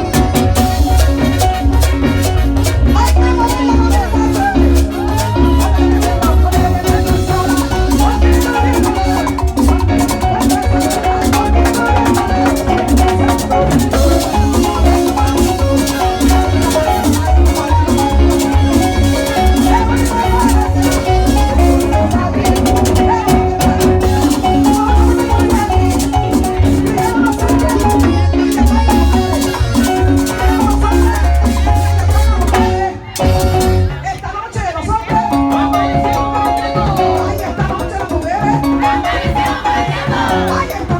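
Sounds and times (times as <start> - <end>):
loud latin dance music: 0.0 - 40.9.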